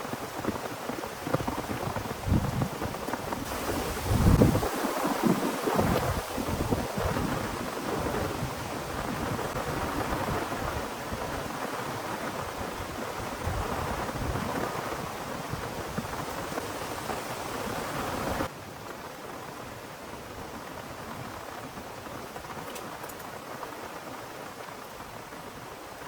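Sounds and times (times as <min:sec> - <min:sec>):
heavy rain pouring: 0:00.0 - 0:18.5.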